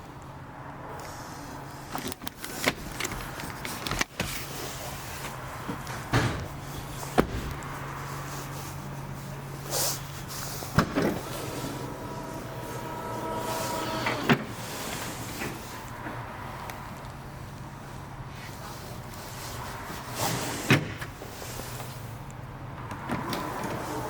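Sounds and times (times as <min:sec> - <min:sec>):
steady low hum: 0:05.0 - 0:19.2
brief whooshing: 0:10.8 - 0:16.0.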